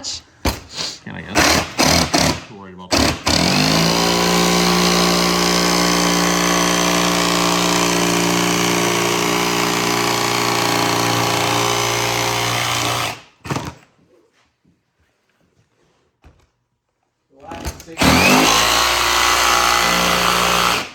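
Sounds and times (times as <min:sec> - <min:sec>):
electric power tool running: 0:01.4 - 0:13.7, 0:18.0 - 0:20.9.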